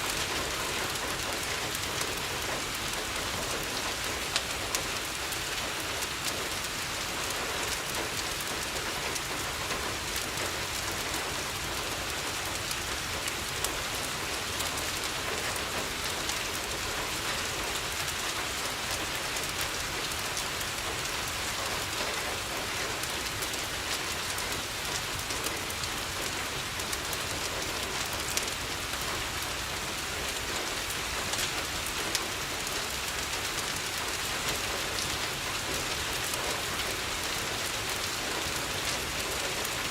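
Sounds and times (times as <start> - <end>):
heavy rain on a window: 0.0 - 39.9.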